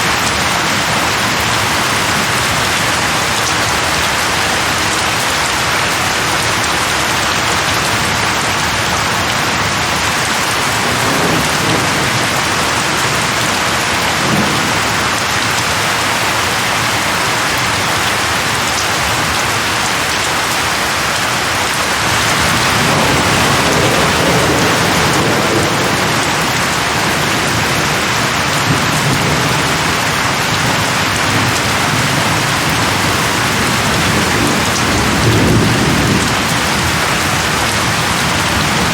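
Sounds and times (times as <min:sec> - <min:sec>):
heavy rain: 0:00.0 - 0:38.9
low thunder rumbles: 0:09.6 - 0:16.4, 0:22.1 - 0:38.9.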